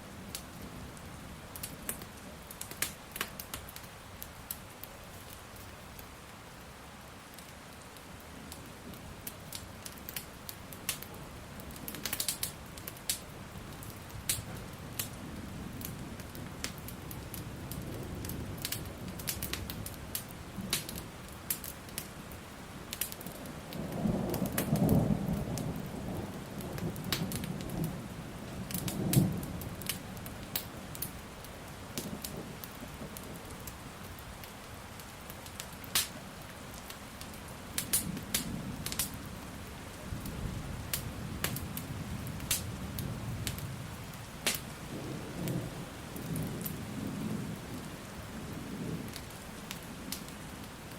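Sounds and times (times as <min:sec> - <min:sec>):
steady rain: 0:00.0 - 0:50.9
wood fire crackling: 0:00.0 - 0:50.9
rolling thunder: 0:23.8 - 0:30.5, 0:44.8 - 0:49.4.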